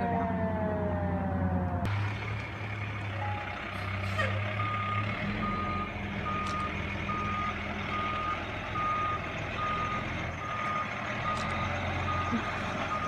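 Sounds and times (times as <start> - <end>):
fire truck siren: 0.0 - 13.0
truck engine running: 0.0 - 13.0
reversing alarm beeping: 4.6 - 13.0.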